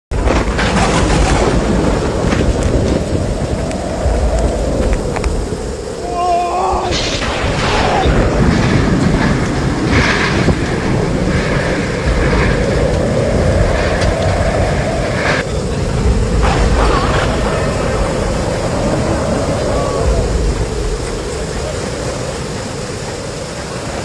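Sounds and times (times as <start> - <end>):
wind and rain rumble: 0.1 - 24.0.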